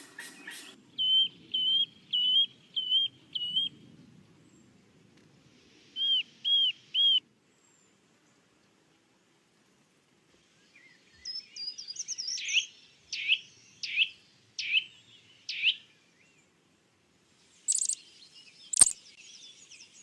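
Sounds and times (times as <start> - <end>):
bird whistling: 0.0 - 3.7, 17.7 - 18.0, 18.7 - 19.0.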